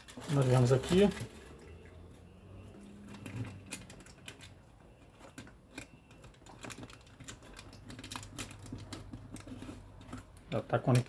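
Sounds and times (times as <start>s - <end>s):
foil tape clicking and crackling: 5.3s - 11.0s.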